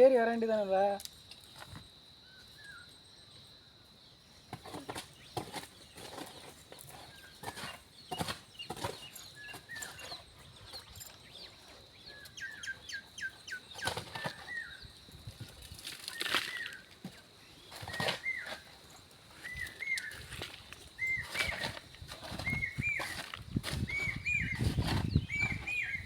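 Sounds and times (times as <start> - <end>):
small bird chirping: 2.2 - 3.4, 4.6 - 15.0, 19.4 - 26.0
hand tool scraping stony ground: 4.5 - 26.0.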